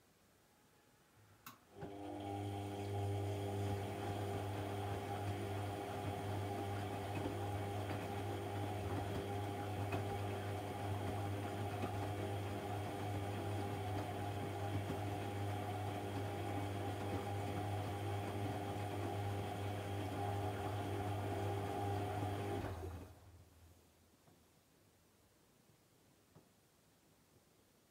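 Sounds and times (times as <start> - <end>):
washing machine humming: 1.7 - 23.3.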